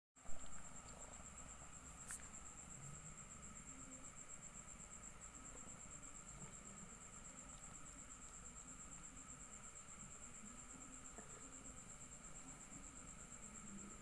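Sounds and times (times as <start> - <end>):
high-pitched insect trill: 0.2 - 14.0.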